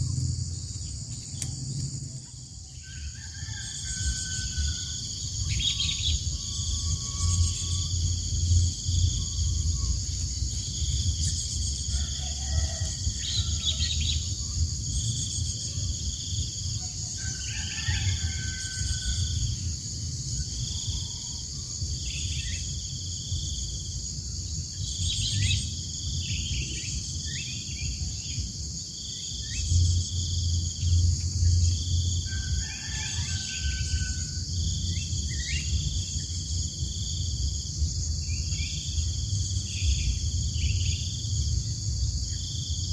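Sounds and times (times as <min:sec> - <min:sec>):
low rumble: 0:00.0 - 0:11.9
pulsing cricket-like call: 0:00.0 - 0:42.9.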